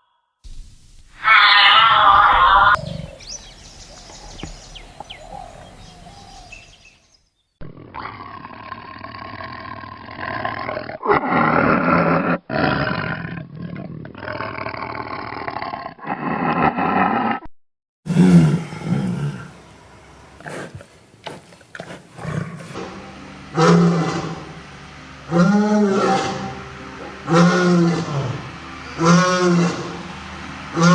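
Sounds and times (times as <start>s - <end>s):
big cat roaring and growling: 1.2s - 3.3s, 7.6s - 17.5s, 18.1s - 19.6s, 22.2s - 24.6s, 25.2s - 30.1s.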